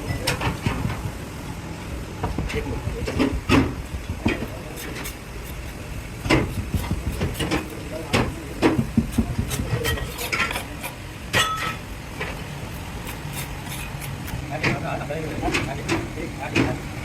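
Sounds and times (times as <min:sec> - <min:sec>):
low hum of workshop machinery: 0:00.0 - 0:17.0
metal clanks and knocks: 0:02.2 - 0:05.1, 0:06.2 - 0:10.7, 0:11.3 - 0:12.4, 0:14.6 - 0:16.8.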